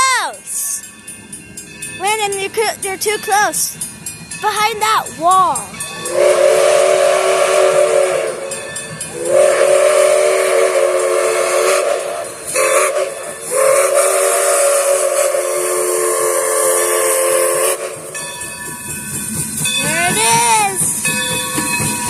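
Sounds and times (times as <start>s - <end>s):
steam locomotive chime whistle: 5.1s - 22.0s
steam hissing: 5.6s - 22.0s.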